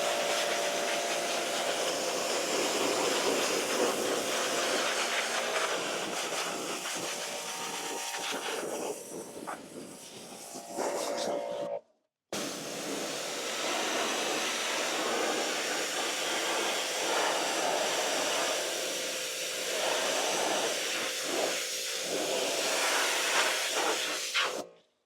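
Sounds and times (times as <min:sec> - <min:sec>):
pressure washer jet spraying: 0:00.0 - 0:09.3, 0:12.4 - 0:19.0.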